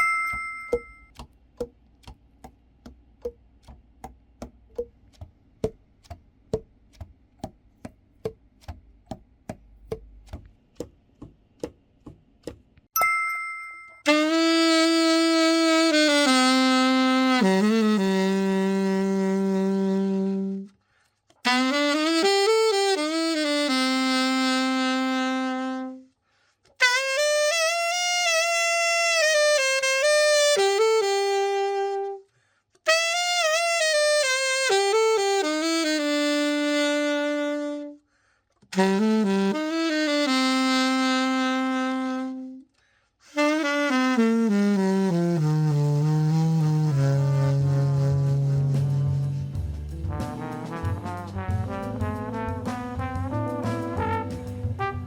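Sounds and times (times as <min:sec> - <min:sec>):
short chime: 0:00.0 - 0:01.1, 0:13.0 - 0:14.1
alto saxophone long notes: 0:14.1 - 0:20.8, 0:21.4 - 0:26.1, 0:26.8 - 0:32.3, 0:32.9 - 0:38.0, 0:38.7 - 0:55.0.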